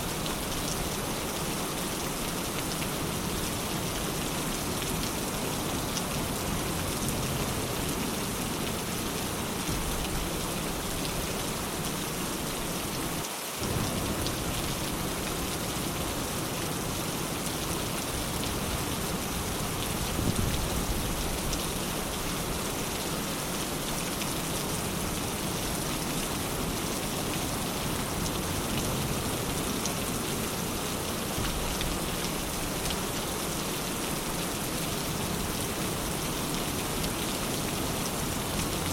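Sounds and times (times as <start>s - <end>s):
dense rain falling: 0.0s - 38.9s.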